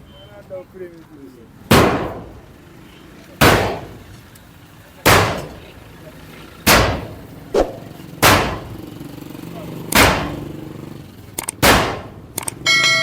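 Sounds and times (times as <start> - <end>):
heavy hammer blows ringing: 6.7 - 8.8, 12.6 - 13.0.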